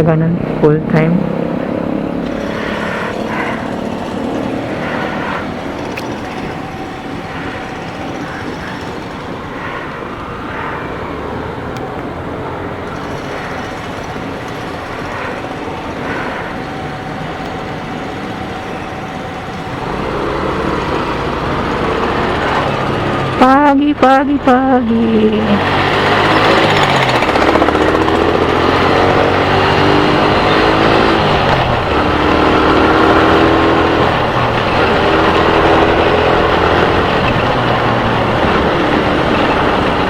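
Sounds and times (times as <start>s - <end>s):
motorcycle engine running: 0.0s - 10.6s, 11.2s - 40.0s
road noise: 0.0s - 40.0s.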